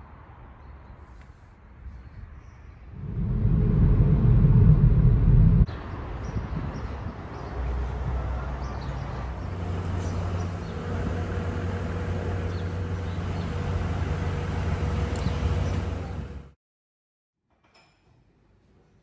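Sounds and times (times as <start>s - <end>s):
vehicle running with low rumble: 2.9s - 5.7s, 7.8s - 16.6s.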